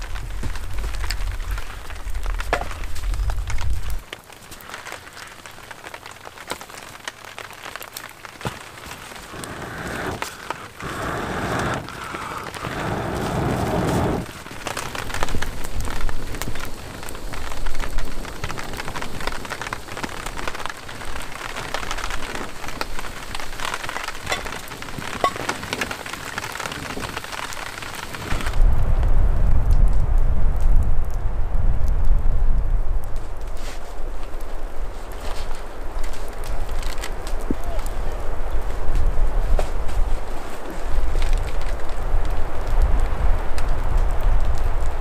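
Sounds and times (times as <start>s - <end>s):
campfire crackling: 0.0s - 45.0s
rain drops tapping: 0.0s - 45.0s
loud rushing noise: 10.8s - 14.3s.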